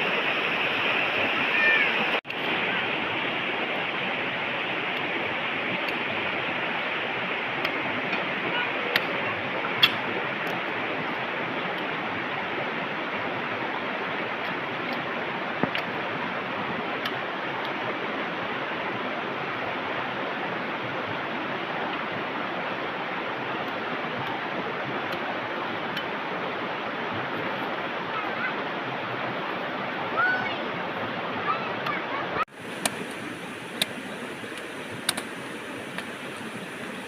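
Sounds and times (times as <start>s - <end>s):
flowing water rushing: 0.0s - 37.0s
sharp click: 34.6s - 35.4s.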